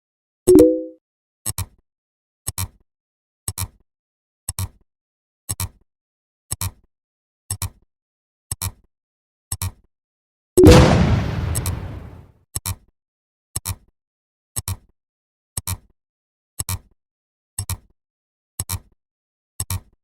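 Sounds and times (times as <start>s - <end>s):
loud bang with rumble: 10.7s - 12.2s.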